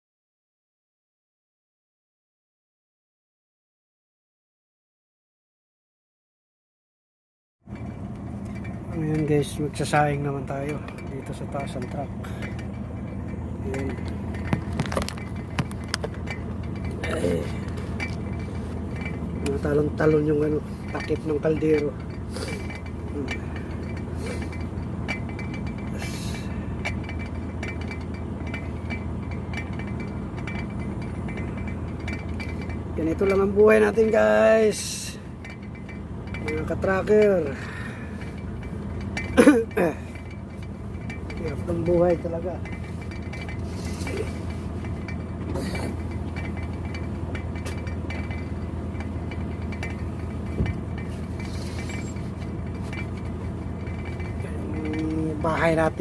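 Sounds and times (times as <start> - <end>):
low engine hum: 7.6 - 56.0
faint clicks and knocks: 7.7 - 56.0.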